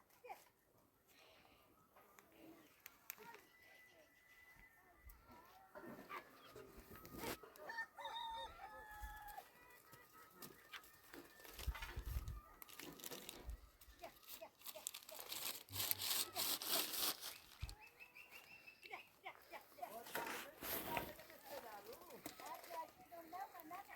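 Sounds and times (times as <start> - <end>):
rustling noise: 6.0 - 7.4, 10.6 - 17.8, 19.5 - 23.9
rooster crowing: 7.6 - 9.5.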